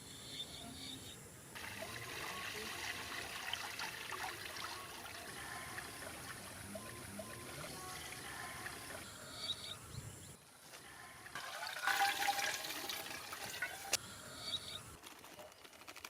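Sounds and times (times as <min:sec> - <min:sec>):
water running and splashing: 0:01.6 - 0:09.0, 0:11.3 - 0:14.0.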